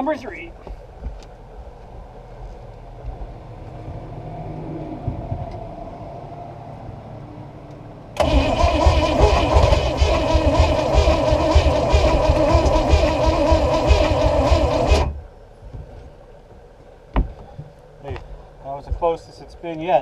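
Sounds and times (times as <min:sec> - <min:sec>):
boat engine cranking on starter: 0:08.2 - 0:15.2.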